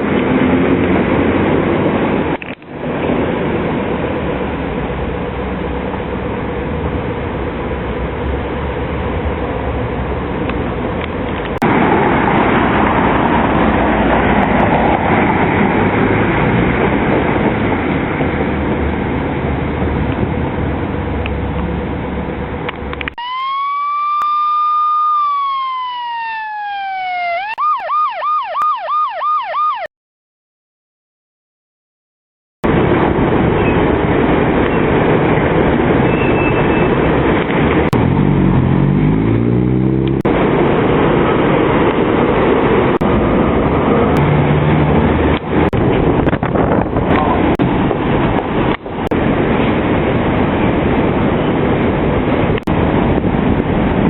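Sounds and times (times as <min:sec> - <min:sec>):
vehicle noise: 0:00.0 - 0:29.9, 0:32.6 - 0:54.0
police siren wailing and yelping: 0:23.1 - 0:29.9.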